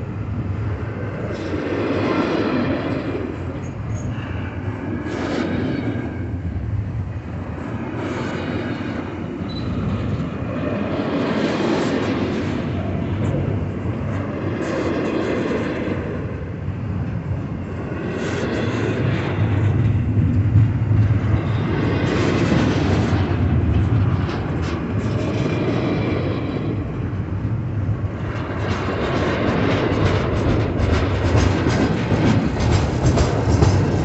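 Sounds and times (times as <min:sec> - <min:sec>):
freight train rumbling past: 0:00.0 - 0:34.0
wheels clattering on rails: 0:18.2 - 0:27.5, 0:28.1 - 0:34.0.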